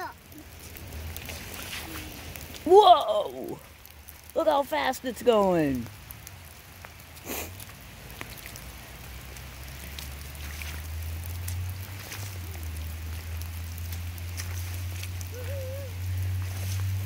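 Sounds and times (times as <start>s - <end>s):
light rain: 0.0s - 17.0s
rustle: 0.0s - 17.0s
footsteps on a wet trail: 6.7s - 17.0s.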